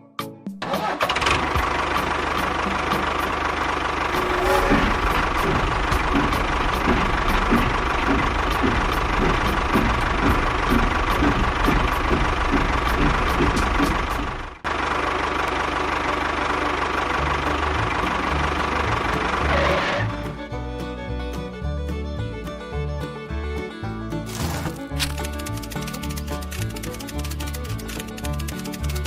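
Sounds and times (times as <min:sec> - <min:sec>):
small motor running: 0:04.1 - 0:14.5, 0:25.0 - 0:29.0
regular knocking pulse: 0:04.1 - 0:14.6.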